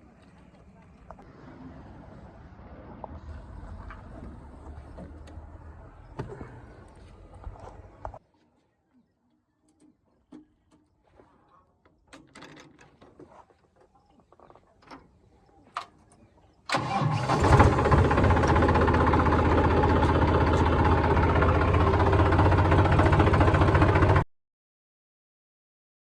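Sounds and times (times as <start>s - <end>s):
tractor diesel engine starting: 3.0s - 8.2s, 16.7s - 24.2s.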